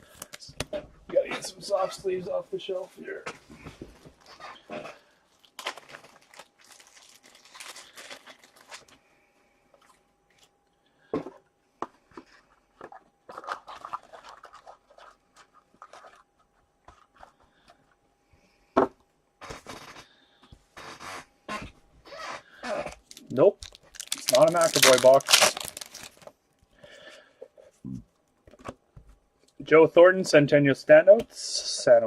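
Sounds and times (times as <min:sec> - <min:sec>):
plastic and foil wrappers crinkling: 0:05.3 - 0:09.0, 0:22.8 - 0:26.3.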